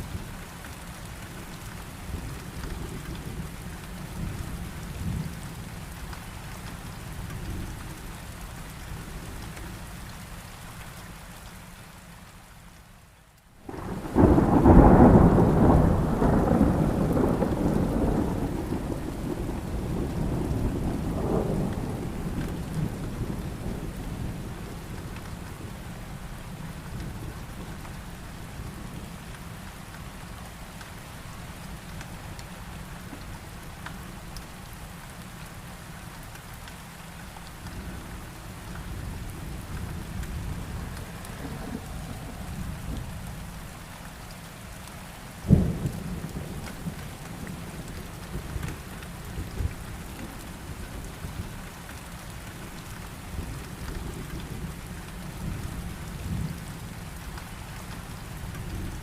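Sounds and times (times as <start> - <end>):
heavy rain: 0.0 - 59.0
thunder clap rumbling: 13.6 - 25.7, 39.0 - 43.7, 45.5 - 50.7.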